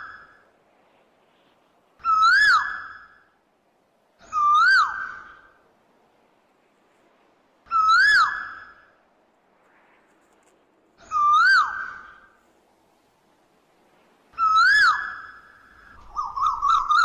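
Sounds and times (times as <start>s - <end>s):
bird whistled call: 2.0s - 3.2s, 4.2s - 5.5s, 7.7s - 8.9s, 11.0s - 12.4s, 14.4s - 17.0s.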